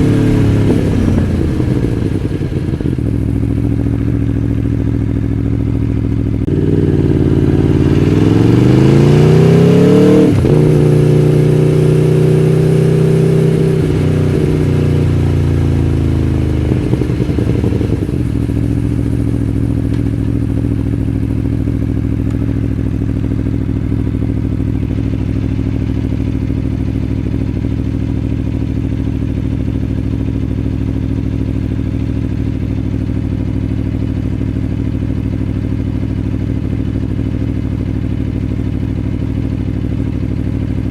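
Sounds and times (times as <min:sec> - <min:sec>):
motorcycle engine pulling away: 0:00.0 - 0:22.2.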